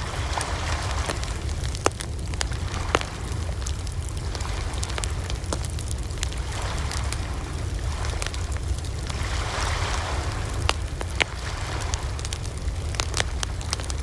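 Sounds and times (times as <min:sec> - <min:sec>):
sharp pops of fire: 0:00.0 - 0:14.0
wood fire crackling: 0:00.0 - 0:14.0.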